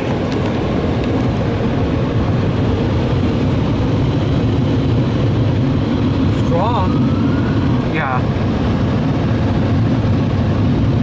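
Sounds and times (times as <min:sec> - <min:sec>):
dryer blowers rushing air: 0:00.0 - 0:11.0.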